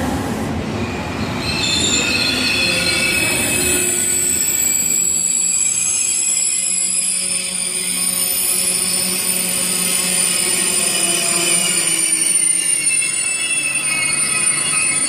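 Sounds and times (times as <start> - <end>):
train low rumble: 0.0 - 11.8
train wheel squeal: 0.8 - 15.0.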